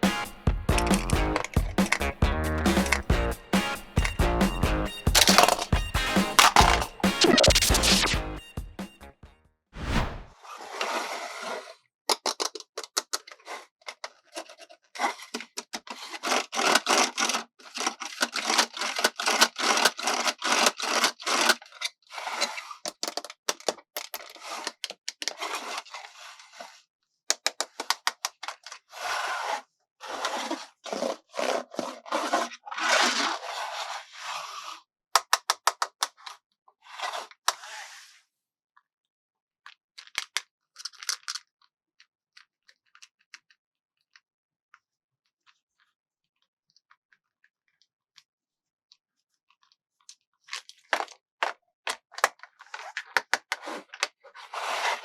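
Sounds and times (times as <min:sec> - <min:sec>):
plastic scraping and rubbing: 0:00.8 - 0:03.1, 0:05.1 - 0:08.2, 0:10.4 - 0:26.8, 0:27.4 - 0:34.8, 0:49.5 - 0:55.0
sharp clicks: 0:05.1 - 0:08.2.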